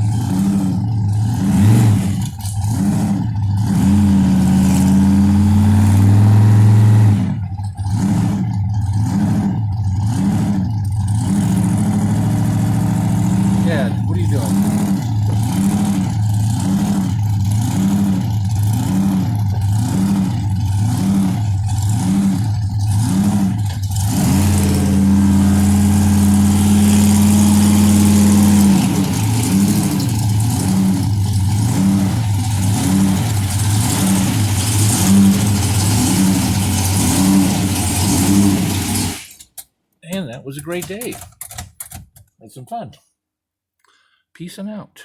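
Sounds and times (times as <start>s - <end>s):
hot rod engine loping idle: 0.0s - 39.2s.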